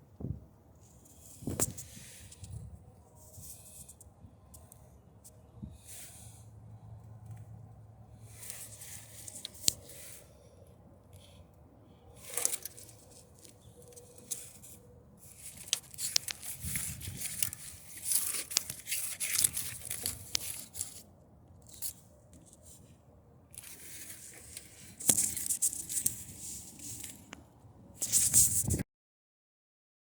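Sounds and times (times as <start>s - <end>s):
crinkling: 12.1s - 22.9s, 23.5s - 28.8s.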